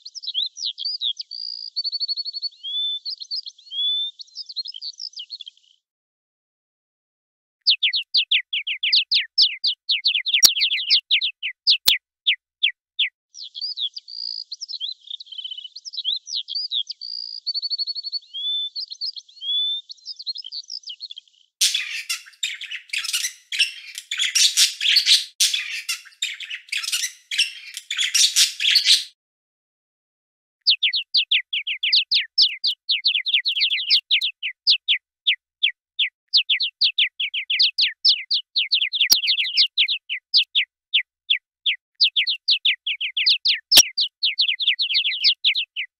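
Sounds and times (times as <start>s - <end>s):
songbirds chirping and singing: 0.0s - 5.8s, 7.7s - 29.2s, 30.7s - 45.9s
scratchy bird chatter: 7.8s - 12.0s, 21.6s - 29.2s, 30.8s - 35.0s, 36.3s - 40.7s.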